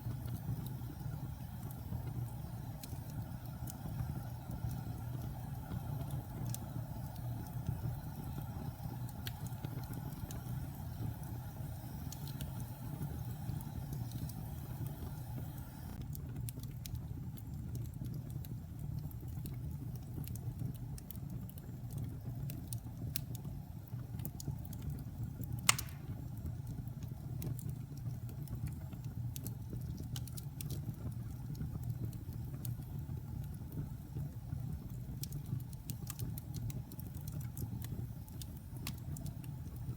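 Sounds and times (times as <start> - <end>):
faint hiss: 0.0 - 16.0
fire flames rumbling: 0.0 - 39.9
wood fire crackling: 0.0 - 39.9
sharp pop of fire: 25.6 - 26.4.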